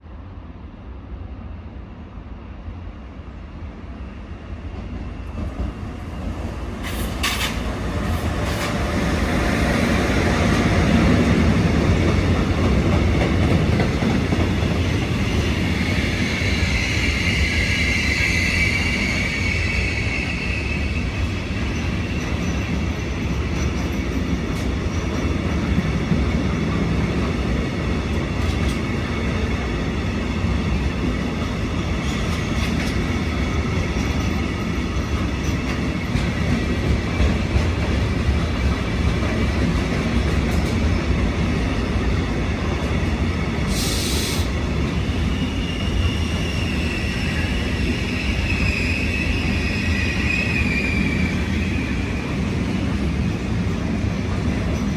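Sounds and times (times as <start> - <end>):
train wheels rumbling on rails: 2.6 - 54.9
high wheel squeal: 15.3 - 22.7, 43.7 - 52.4
short hiss: 43.7 - 44.5.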